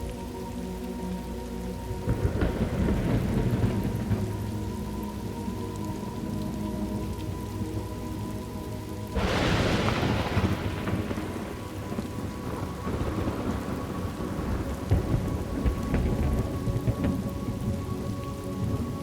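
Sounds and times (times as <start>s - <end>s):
steady rain: 0.0s - 19.0s
thunder crack rolling: 2.1s - 4.4s, 9.2s - 17.8s.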